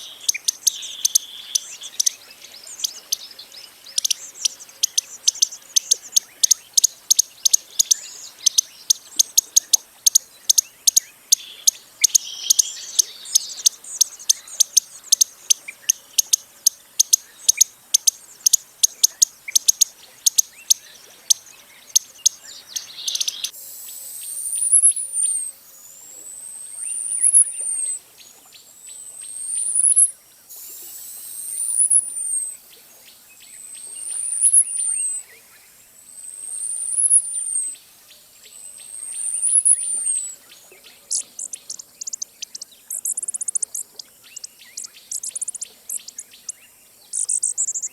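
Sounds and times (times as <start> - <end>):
hummingbird whistle: 22.9 - 25.5, 26.9 - 27.9, 29.3 - 30.1, 31.3 - 32.4, 36.5 - 37.6, 39.1 - 40.4.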